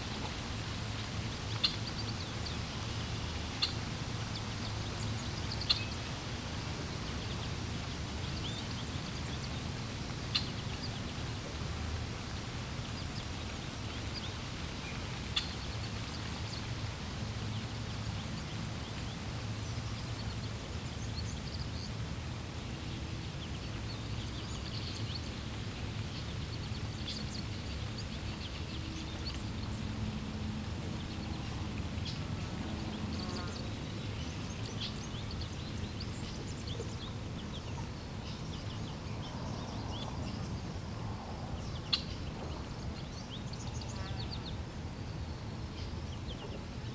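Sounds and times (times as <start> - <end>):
flowing water rumble: 0.0 - 46.9.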